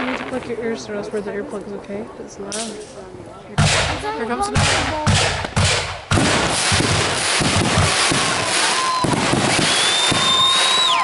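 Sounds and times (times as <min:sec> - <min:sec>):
fireworks bangs: 0:00.0 - 0:01.1, 0:02.5 - 0:11.0
fireworks crackling: 0:00.0 - 0:01.4, 0:03.6 - 0:11.0
fireworks whistling: 0:03.6 - 0:11.0.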